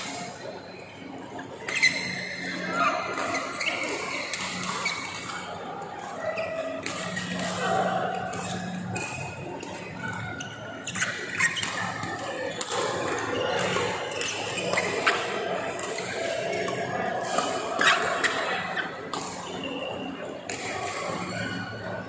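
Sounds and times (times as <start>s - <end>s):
sneakers squeaking on court floor: 1.6s - 5.4s, 6.2s - 20.1s.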